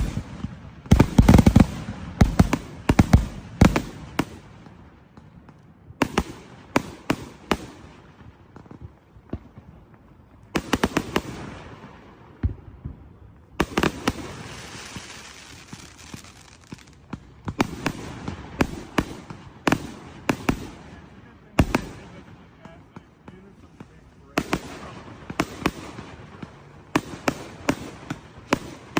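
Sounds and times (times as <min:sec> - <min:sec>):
fireworks bangs: 0:00.0 - 0:28.9
fireworks crackling hiss: 0:13.4 - 0:22.7.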